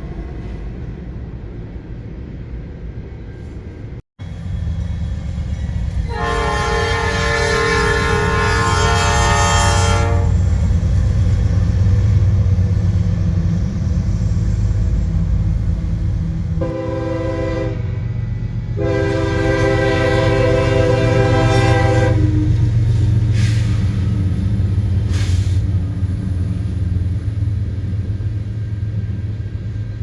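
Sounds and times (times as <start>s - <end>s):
train rumble: 0.0s - 30.0s
train horn blasts: 6.1s - 10.4s, 16.6s - 18.1s, 18.7s - 22.6s.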